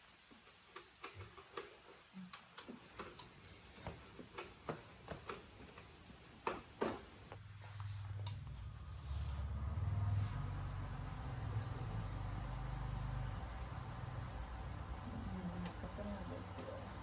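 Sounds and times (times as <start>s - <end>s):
low steady hum: 7.2s - 17.0s.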